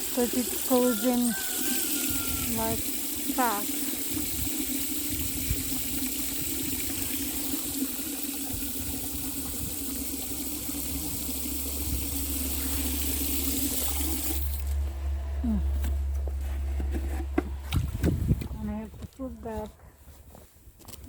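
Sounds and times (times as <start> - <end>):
water running from a tap: 0.0 - 14.7.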